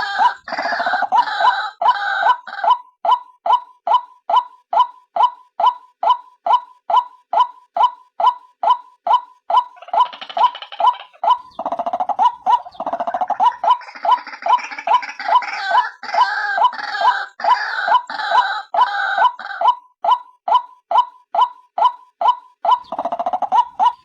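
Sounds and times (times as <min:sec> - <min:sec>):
harsh bird chattering: 0:00.0 - 0:02.8, 0:04.8 - 0:24.0
waterhen calling: 0:09.5 - 0:19.6.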